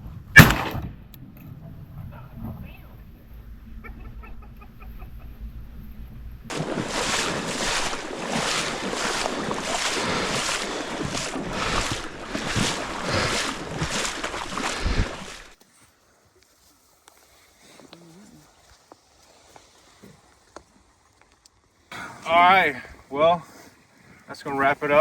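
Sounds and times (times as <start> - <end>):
rhythmic water splashing: 6.5 - 15.6.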